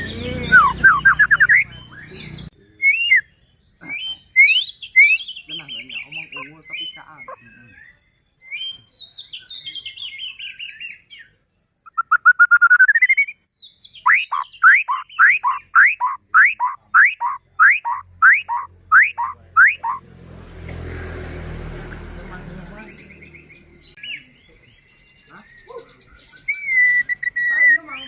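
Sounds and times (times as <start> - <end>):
bird singing warbled phrases: 0.0 - 28.0.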